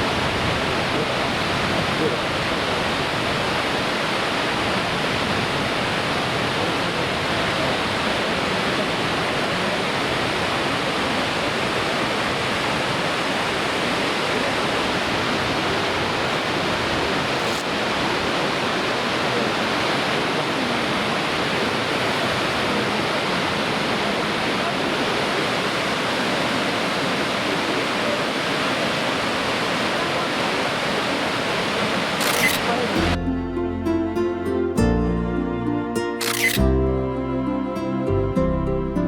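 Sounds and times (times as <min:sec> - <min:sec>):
waterfall roaring: 0:00.0 - 0:33.2.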